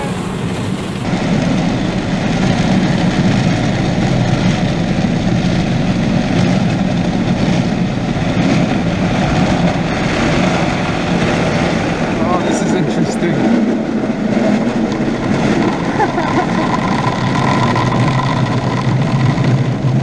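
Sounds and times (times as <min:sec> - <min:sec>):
water spraying on car: 0:00.0 - 0:01.1
car wash machinery: 0:00.0 - 0:02.6.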